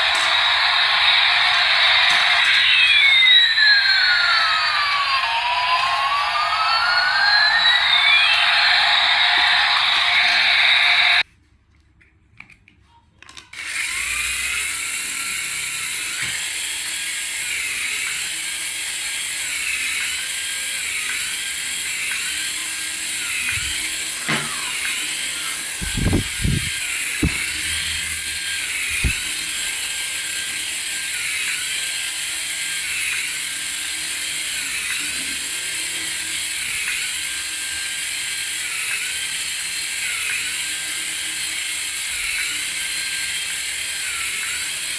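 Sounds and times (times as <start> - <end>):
toy motor whirring: 0.0 - 11.0, 13.2 - 44.9
low knocks: 25.8 - 29.2.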